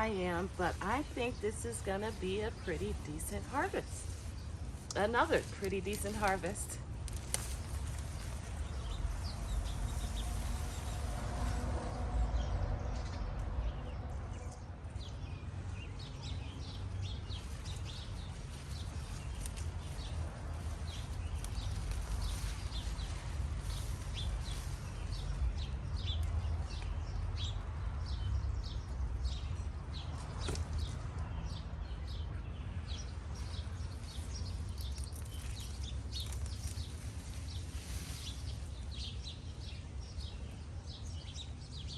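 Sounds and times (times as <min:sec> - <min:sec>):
small birds chirping: 0:00.0 - 0:41.9
steady low rumble: 0:00.0 - 0:41.9.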